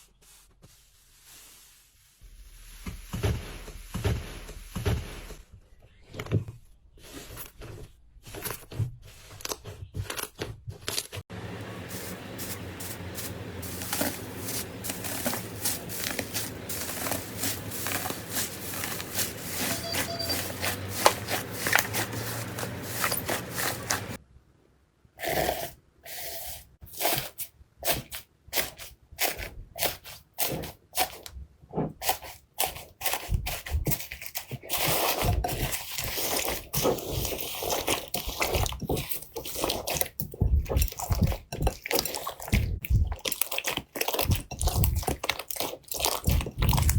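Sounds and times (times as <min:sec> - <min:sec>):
crunchy slime crackling: 0:12.0 - 0:24.2, 0:32.6 - 0:46.9.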